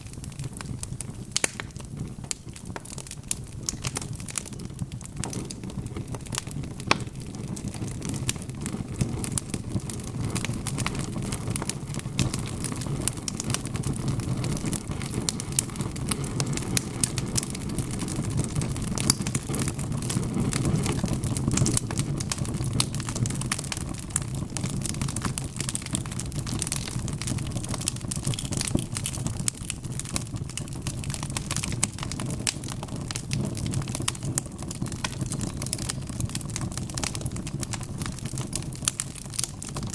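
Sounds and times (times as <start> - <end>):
low rumble of burning logs: 0.0 - 39.9
wood fire crackling and popping: 0.0 - 39.9.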